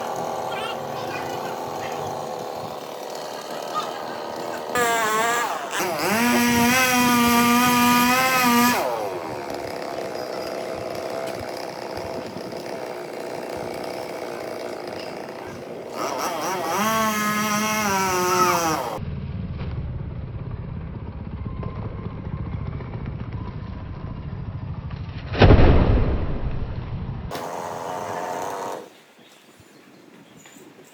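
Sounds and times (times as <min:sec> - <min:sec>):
chainsaw revving: 0:00.0 - 0:19.0, 0:27.3 - 0:28.9
loud thump: 0:25.3 - 0:27.0.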